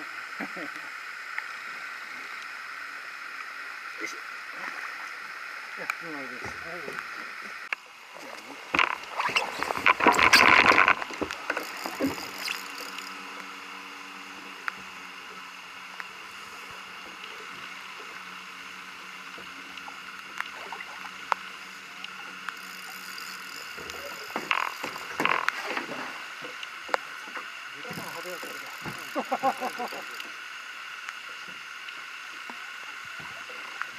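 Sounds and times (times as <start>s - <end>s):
boat motor humming: 0.0s - 33.9s
small clicks: 8.8s - 13.5s.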